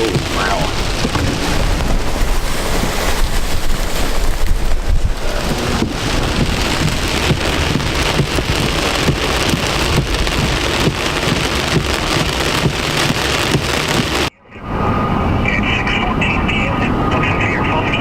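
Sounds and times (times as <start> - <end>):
heavy rain on a vehicle: 0.0 - 14.3.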